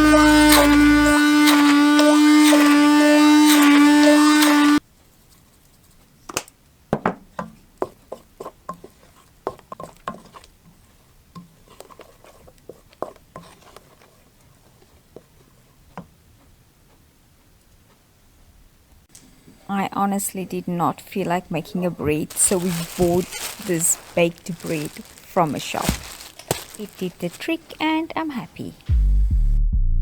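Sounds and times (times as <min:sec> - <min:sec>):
music: 0:28.8 - 0:30.0.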